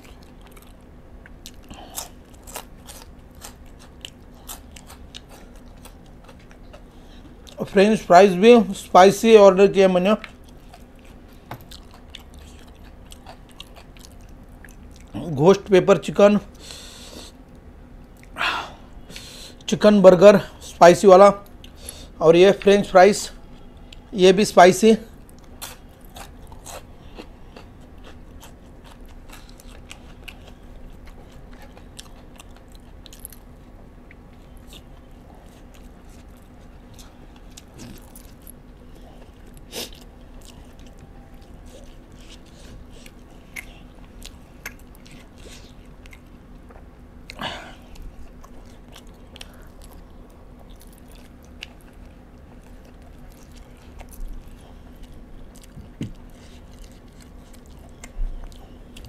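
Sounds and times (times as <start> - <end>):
chewing crunchy food: 0.0 - 7.8, 10.1 - 15.4, 25.1 - 59.0.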